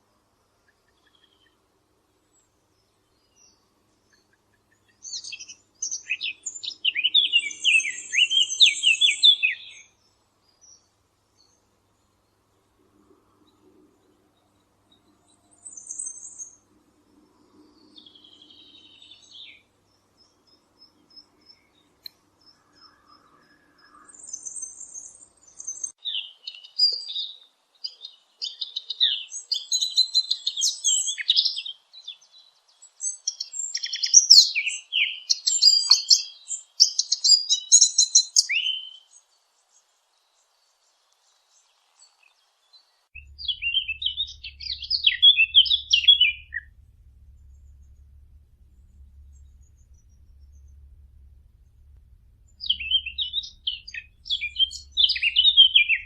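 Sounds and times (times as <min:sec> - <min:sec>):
songbirds chirping and singing: 0:02.4 - 0:12.4, 0:17.2 - 0:48.2, 0:52.5 - 0:56.0.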